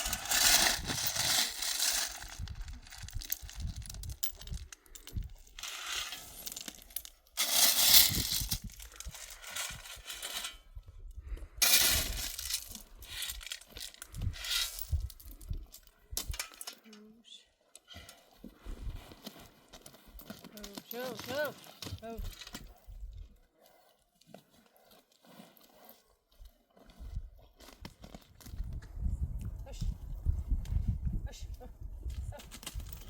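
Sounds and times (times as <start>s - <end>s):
pebbles clattering: 0.0s - 10.5s, 11.6s - 16.8s.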